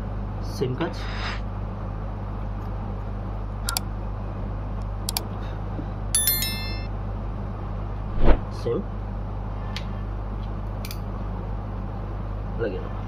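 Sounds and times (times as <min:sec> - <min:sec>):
steady low hum: 0:00.0 - 0:13.0
short metallic ring: 0:06.2 - 0:06.9.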